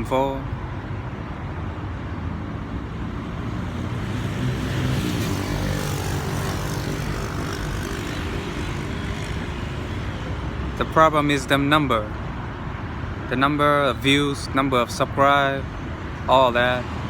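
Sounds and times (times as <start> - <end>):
propeller plane engine drone: 3.2 - 11.2.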